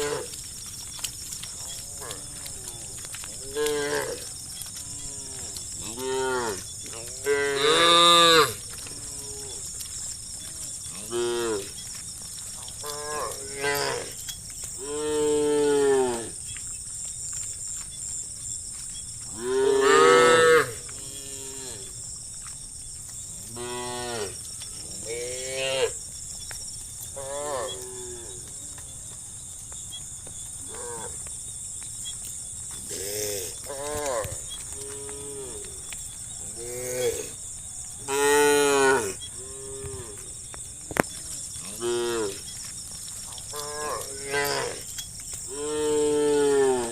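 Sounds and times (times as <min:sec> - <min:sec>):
cows mooing: 0:00.0 - 0:00.4, 0:01.6 - 0:09.6, 0:10.8 - 0:11.8, 0:12.8 - 0:14.2, 0:14.8 - 0:16.4, 0:19.3 - 0:21.9, 0:38.0 - 0:40.2, 0:41.6 - 0:42.4, 0:43.5 - 0:44.9, 0:45.5 - 0:46.9
insects chirring: 0:00.0 - 0:46.9.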